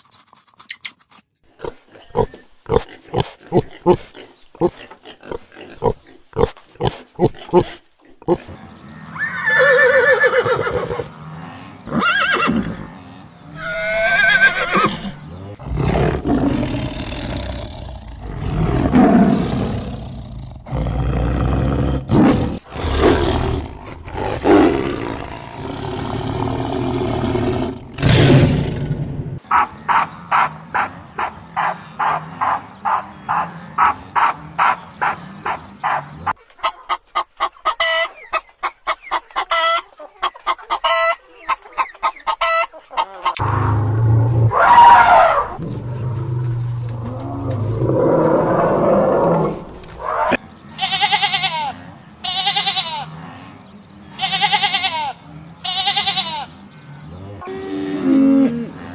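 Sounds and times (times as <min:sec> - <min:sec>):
tiger roaring and growling: 0:14.8 - 0:29.4, 0:43.4 - 0:50.4.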